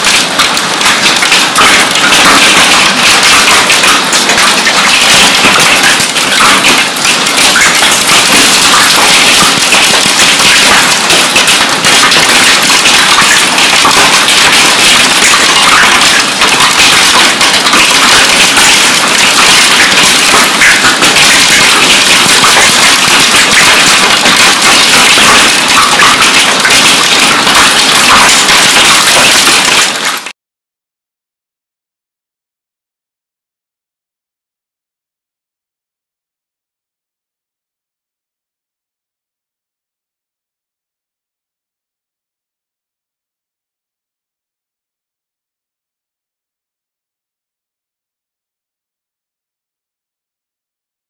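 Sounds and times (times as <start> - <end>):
hailstones clattering: 0.0 - 30.3
heavy rain rushing: 0.0 - 30.3.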